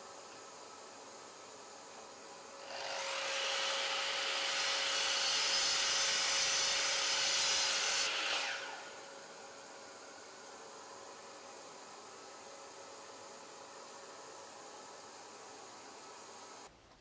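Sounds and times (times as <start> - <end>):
miter saw cutting wood: 2.5 - 9.3
saw blade winding down whine: 2.6 - 9.5.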